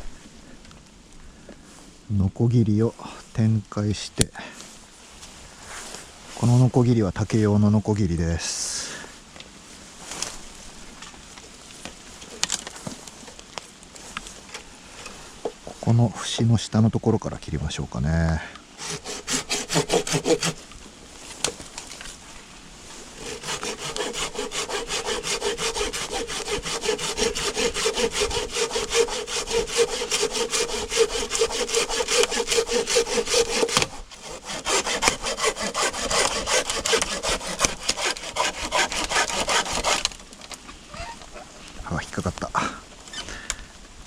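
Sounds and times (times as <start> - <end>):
saw cutting bamboo: 18.8 - 20.7, 23.0 - 40.2.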